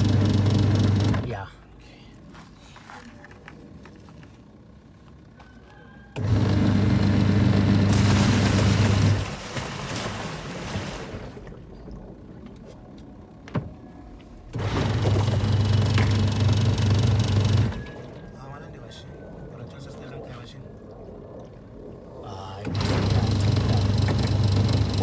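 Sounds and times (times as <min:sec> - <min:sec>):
washing machine motor humming: 0:00.0 - 0:01.5, 0:06.1 - 0:09.4, 0:11.2 - 0:18.6, 0:21.8 - 0:25.0.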